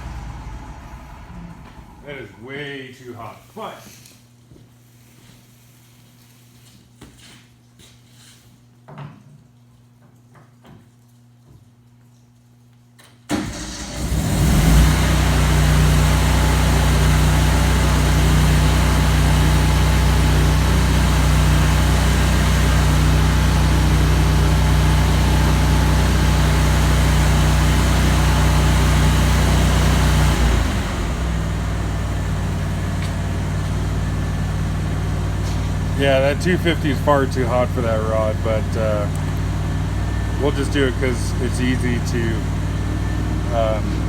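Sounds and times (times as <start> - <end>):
welder engine running: 0.0 - 3.4, 13.4 - 44.0.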